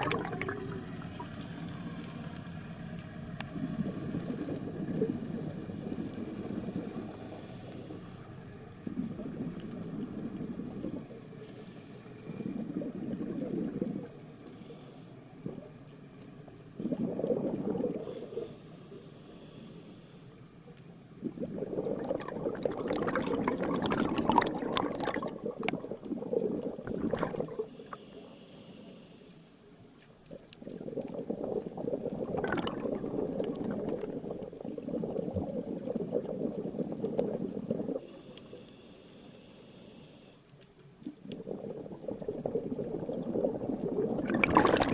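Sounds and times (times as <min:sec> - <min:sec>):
exhaled air bubbles: 0:00.0 - 0:01.4, 0:03.4 - 0:08.1, 0:08.8 - 0:11.4, 0:12.2 - 0:14.4, 0:15.3 - 0:15.9, 0:16.7 - 0:18.5, 0:21.1 - 0:28.0, 0:30.1 - 0:38.6, 0:41.0 - 0:44.9
regulator inhalation hiss: 0:07.3 - 0:08.4, 0:11.4 - 0:12.2, 0:14.5 - 0:15.2, 0:18.1 - 0:20.4, 0:27.6 - 0:29.6, 0:38.0 - 0:40.5.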